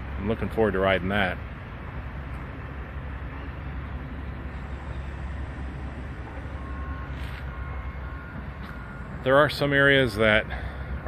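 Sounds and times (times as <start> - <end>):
construction machinery rumble: 0.0 - 11.0
passing vehicles: 0.0 - 11.0
faint short beeps: 6.2 - 9.3.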